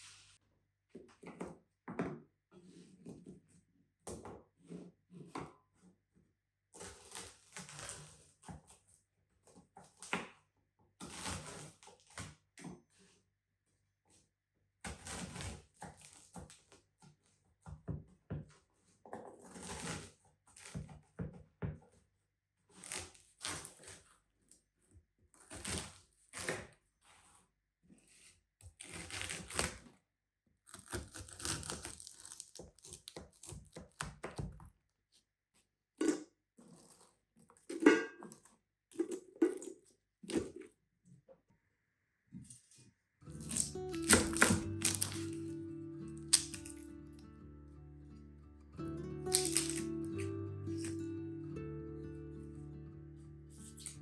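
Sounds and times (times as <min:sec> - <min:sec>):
rustling tearing of food: 0:30.7 - 0:33.7, 0:43.3 - 0:45.5, 0:49.2 - 0:51.1.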